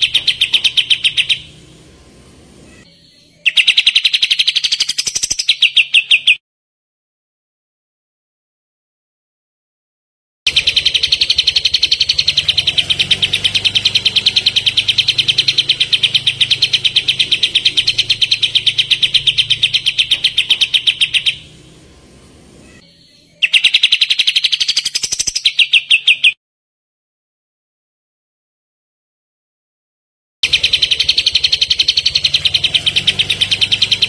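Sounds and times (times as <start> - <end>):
songbird fast chirping trill: 0.0 - 6.4, 10.5 - 26.4, 30.4 - 34.0.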